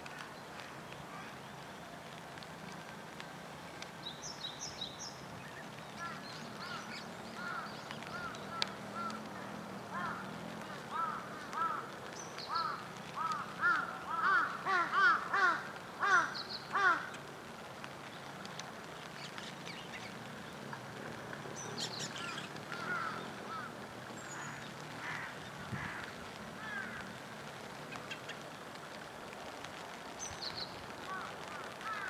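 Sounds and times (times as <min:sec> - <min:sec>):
small birds chirping: 0:03.9 - 0:15.1, 0:18.0 - 0:20.7, 0:21.5 - 0:28.8, 0:30.1 - 0:32.0.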